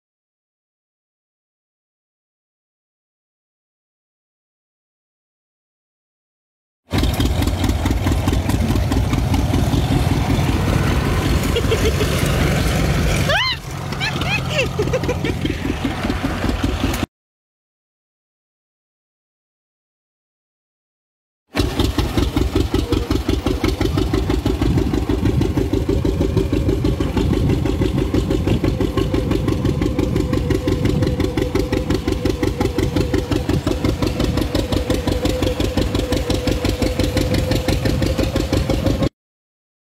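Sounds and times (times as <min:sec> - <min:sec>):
tractor engine running: 0:06.9 - 0:17.1, 0:21.5 - 0:39.1.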